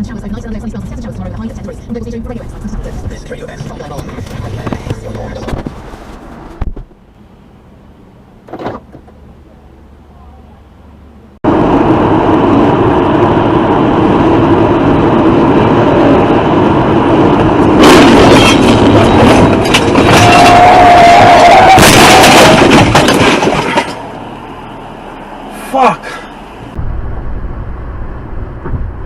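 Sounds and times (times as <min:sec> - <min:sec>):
vehicle and road noise: 0:00.0 - 0:29.0
loud bangs: 0:17.8 - 0:24.2.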